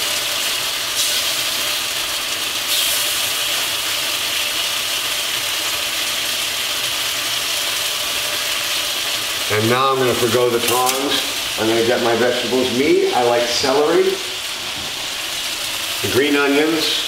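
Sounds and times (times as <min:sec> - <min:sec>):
beef sizzling in hot oil: 0:00.0 - 0:17.0.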